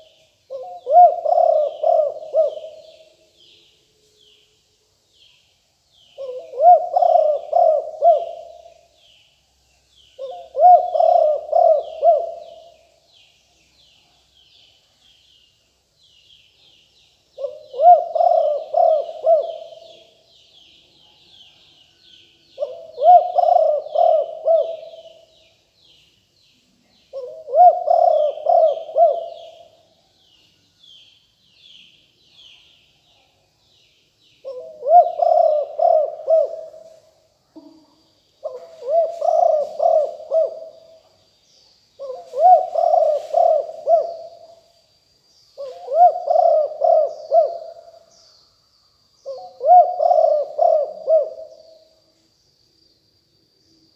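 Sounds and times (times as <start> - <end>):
dove cooing: 0.0 - 3.2, 6.2 - 9.0, 10.2 - 12.8, 17.4 - 20.2, 22.6 - 25.3, 27.1 - 29.8, 34.4 - 37.8, 38.4 - 41.0, 42.0 - 44.6, 45.6 - 48.1, 49.2 - 51.9
small birds chirping: 0.0 - 53.9.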